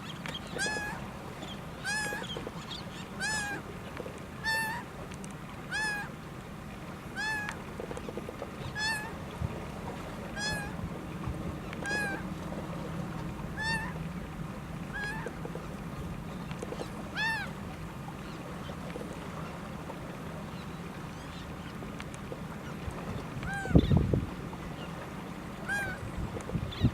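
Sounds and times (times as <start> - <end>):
gull calling: 0.4 - 1.1, 1.8 - 3.7, 4.4 - 4.9, 5.7 - 6.1, 7.1 - 7.6, 8.6 - 9.2, 10.3 - 10.8, 11.7 - 12.3, 13.5 - 14.0, 14.8 - 15.4, 16.7 - 17.6, 22.6 - 24.0, 25.6 - 26.1.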